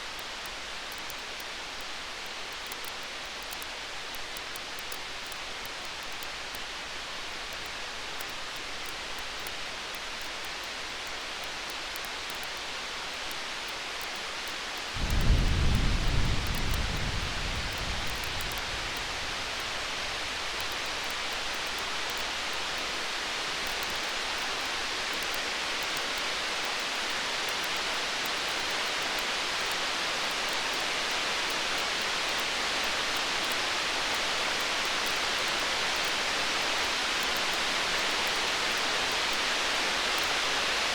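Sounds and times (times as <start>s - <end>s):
steady hiss with faint crackles: 0.0s - 40.9s
distant thunder rumbling: 15.0s - 20.7s.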